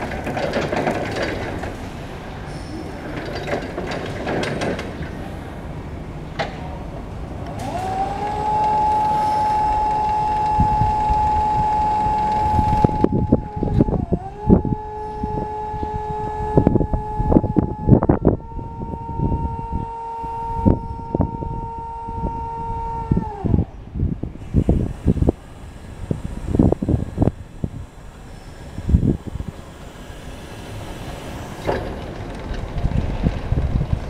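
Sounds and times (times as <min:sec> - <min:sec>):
electric motor whine: 0:07.5 - 0:23.6.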